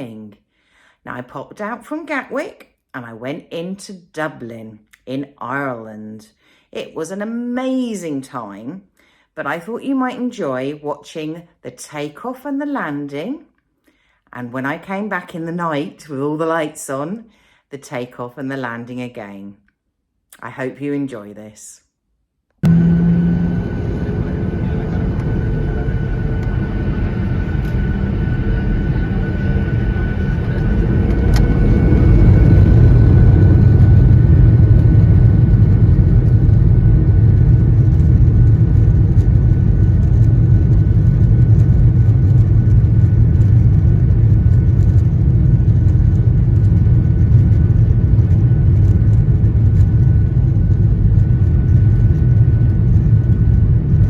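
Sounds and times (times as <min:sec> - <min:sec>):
jet engines from inside cabin: 0:22.6 - 0:54.0.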